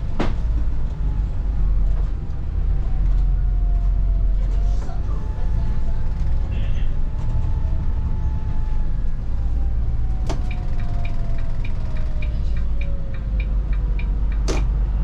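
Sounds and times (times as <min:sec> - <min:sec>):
bus engine and road rumble: 0:00.0 - 0:15.0
turn signal ticking: 0:09.6 - 0:14.7.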